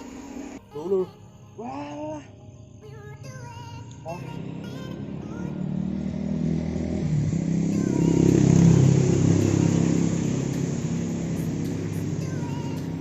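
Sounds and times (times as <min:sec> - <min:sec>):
vehicle engine passing by: 0:04.1 - 0:13.0.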